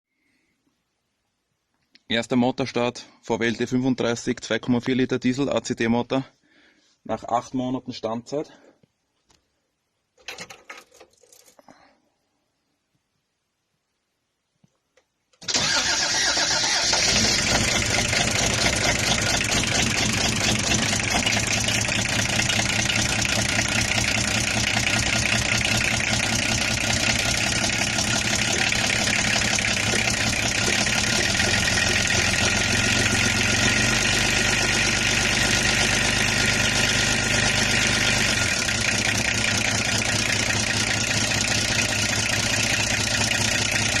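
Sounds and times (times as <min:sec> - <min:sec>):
diesel engine starting and idling: 0:15.4 - 0:44.0.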